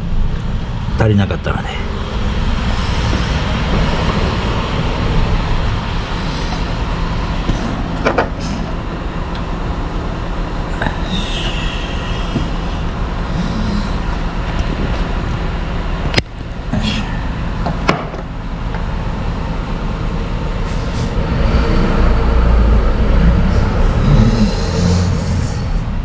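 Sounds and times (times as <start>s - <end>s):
motor droning: 1.5s - 26.0s.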